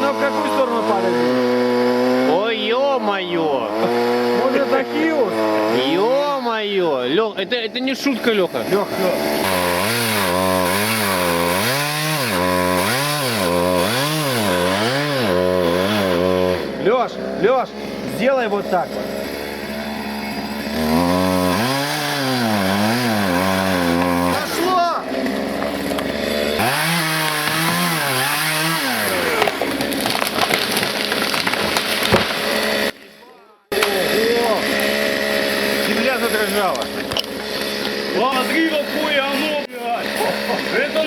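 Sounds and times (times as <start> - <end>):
chainsaw cutting wood: 0.0 - 41.0
wood crackling and splintering: 7.9 - 16.6, 18.7 - 41.0.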